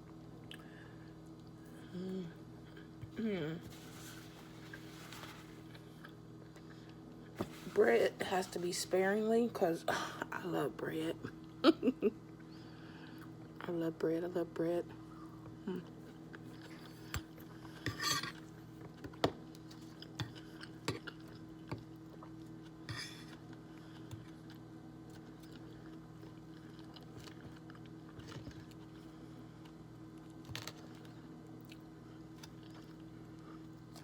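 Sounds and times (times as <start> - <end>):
faint steady hum: 0.0 - 34.0
chewing: 18.9 - 34.0.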